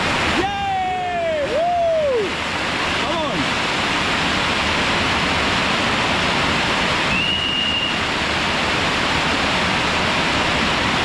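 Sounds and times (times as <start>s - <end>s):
waterfall pouring: 0.0s - 11.0s.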